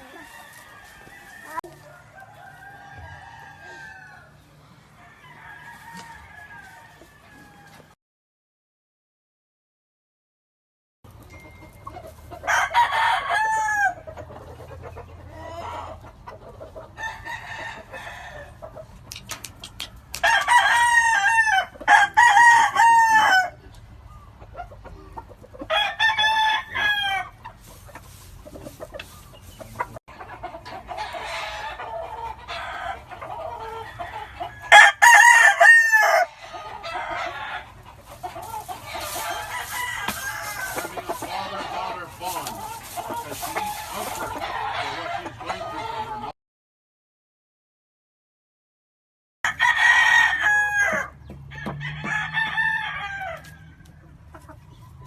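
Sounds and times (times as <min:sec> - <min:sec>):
chickens clucking: 0:00.0 - 0:07.9, 0:11.1 - 0:46.4, 0:50.4 - 0:55.0
roosters crowing: 0:00.0 - 0:08.0, 0:11.4 - 0:19.0, 0:20.0 - 0:46.3, 0:49.4 - 0:54.3.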